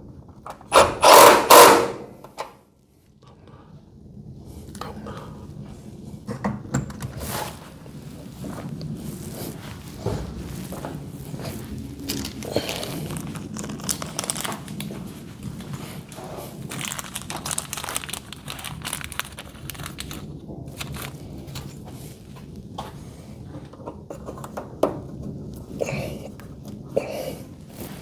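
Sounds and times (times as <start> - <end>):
crinkling rustling handling noise: 7.2 - 28.0.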